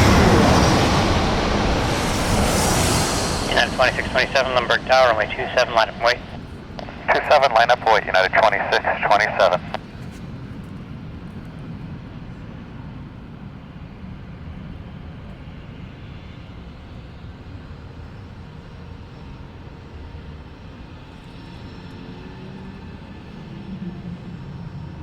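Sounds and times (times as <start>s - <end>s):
faint whine: 0.0s - 9.9s
jet engines low rumble: 0.0s - 25.0s.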